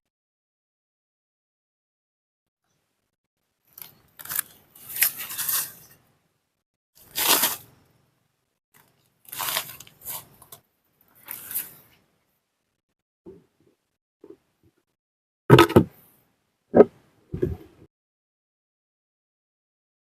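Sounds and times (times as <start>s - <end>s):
rustling and crunching: 3.7s - 6.0s, 7.0s - 7.8s, 8.8s - 12.0s.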